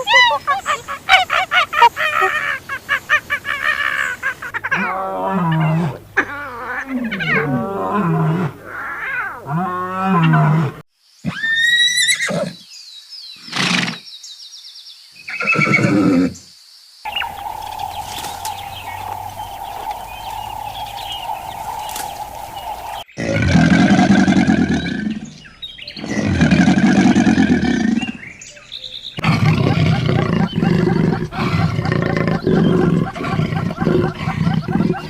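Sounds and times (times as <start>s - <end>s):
pitched animal calls: 0.0s - 10.6s, 17.1s - 25.3s, 29.2s - 35.0s
steady droning tone: 17.1s - 23.0s
loud animal calls: 17.1s - 25.4s, 29.2s - 35.0s.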